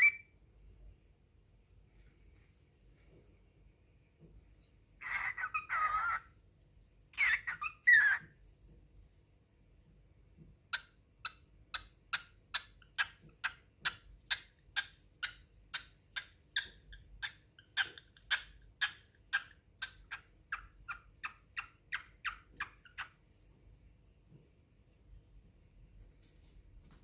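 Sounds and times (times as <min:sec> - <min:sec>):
cockatiel chirping: 0:00.0 - 0:00.3, 0:05.0 - 0:06.4, 0:07.1 - 0:08.3, 0:10.7 - 0:23.5.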